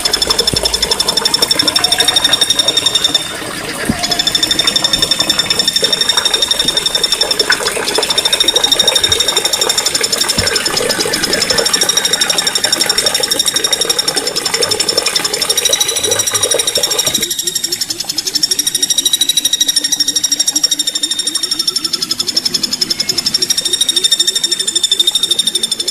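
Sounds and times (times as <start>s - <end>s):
low buzzing rattle: 0.0s - 25.9s
songbirds trilling: 15.8s - 25.9s.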